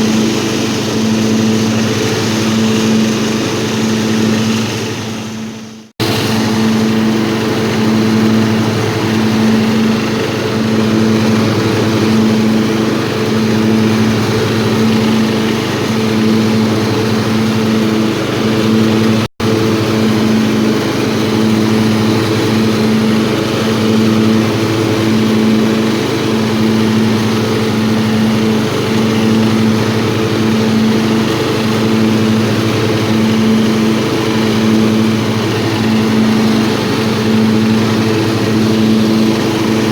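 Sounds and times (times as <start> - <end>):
lawnmower engine running: 0.0 - 39.9.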